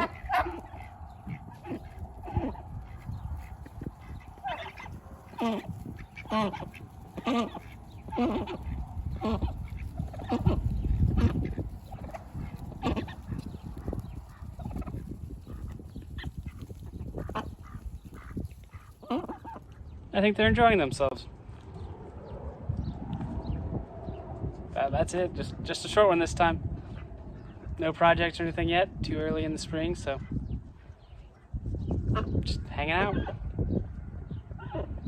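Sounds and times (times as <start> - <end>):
low rumble: 0.0 - 18.2, 20.6 - 29.5
ducks quacking: 0.0 - 19.8.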